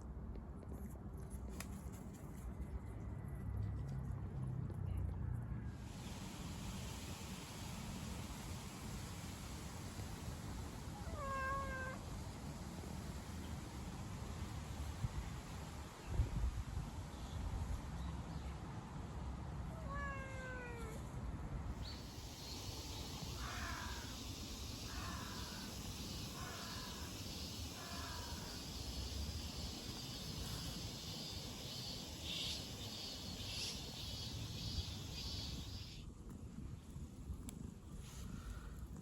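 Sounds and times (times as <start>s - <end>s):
cat meowing: 11.0s - 12.0s
high pulsing chirr: 22.0s - 36.0s.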